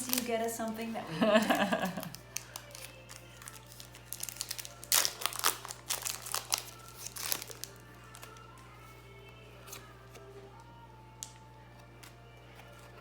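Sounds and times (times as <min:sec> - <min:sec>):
foil wrapper crinkling: 0:00.0 - 0:08.7.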